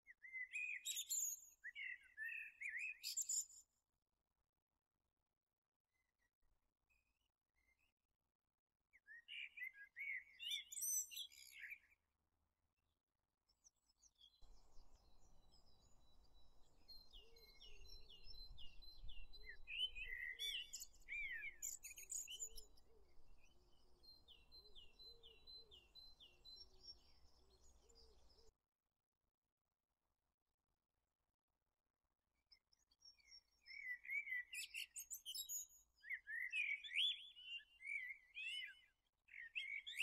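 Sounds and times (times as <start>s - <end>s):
small birds chirping and singing: 0.1s - 3.7s, 8.9s - 11.9s, 13.5s - 28.5s, 32.6s - 40.0s.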